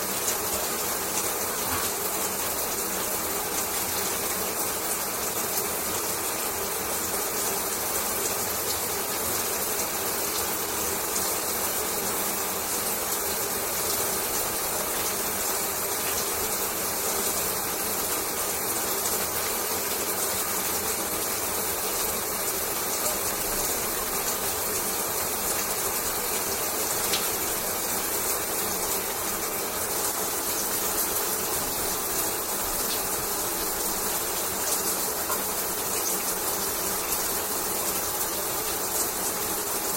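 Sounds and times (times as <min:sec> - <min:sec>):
shower water spraying: 0:11.2 - 0:39.9.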